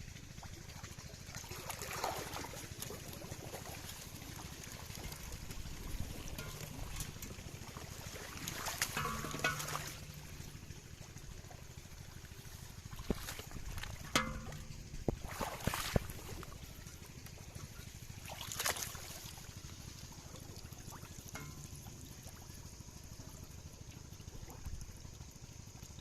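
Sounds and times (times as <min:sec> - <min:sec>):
low steady rumble: 0:00.0 - 0:26.0
water splashing and trickling: 0:00.0 - 0:26.0
sharp knocks: 0:08.8 - 0:10.6, 0:13.0 - 0:16.2.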